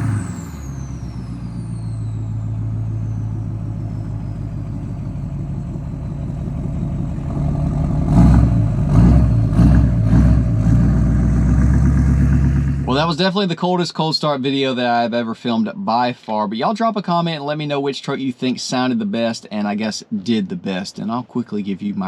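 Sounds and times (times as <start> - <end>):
diesel engine idling and revving: 0.0 - 13.3.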